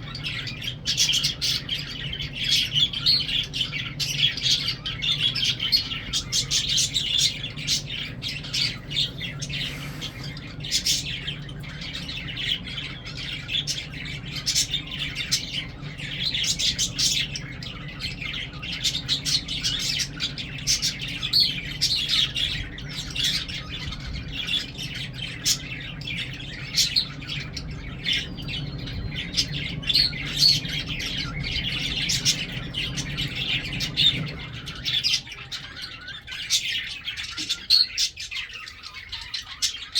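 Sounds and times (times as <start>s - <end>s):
steady low hum: 0.0s - 39.0s
birds chattering and squawking: 0.0s - 39.9s.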